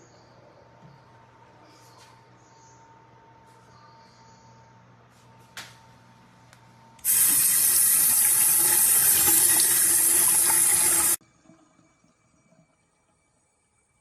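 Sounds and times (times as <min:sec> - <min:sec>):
water running into sink: 0:07.0 - 0:11.2.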